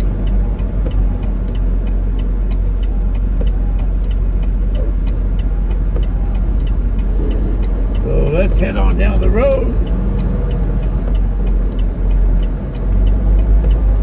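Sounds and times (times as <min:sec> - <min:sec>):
light ticks: 0:00.0 - 0:14.0
road noise: 0:00.0 - 0:14.0
truck diesel engine running: 0:00.0 - 0:14.0.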